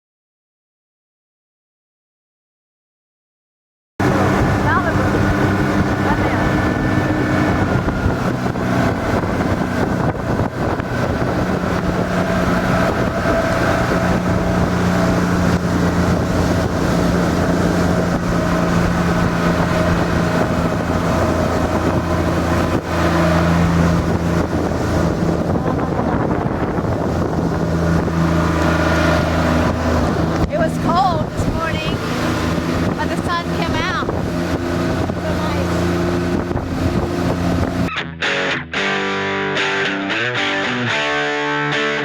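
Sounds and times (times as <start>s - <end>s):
outboard motor running: 4.0s - 38.2s
wind noise on microphone: 4.0s - 38.2s.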